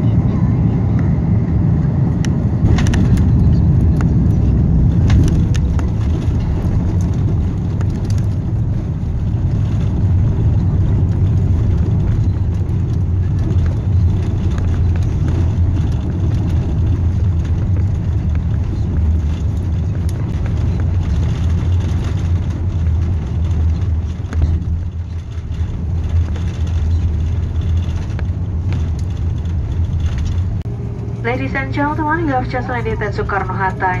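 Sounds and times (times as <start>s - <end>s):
airliner cabin rumble: 0.0s - 34.0s
light clicks and rattles: 11.0s - 30.7s.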